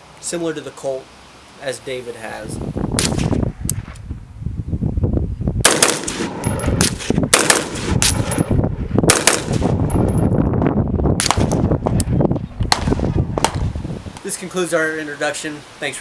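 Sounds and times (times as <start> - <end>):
rifle gunshots: 3.0 - 3.3, 5.6 - 8.4, 9.1 - 9.8, 11.2 - 11.6, 12.7 - 13.7.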